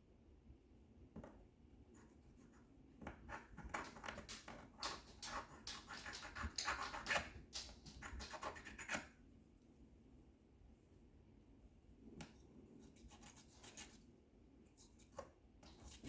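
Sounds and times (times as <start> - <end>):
chisel scraping paint: 3.3 - 9.0.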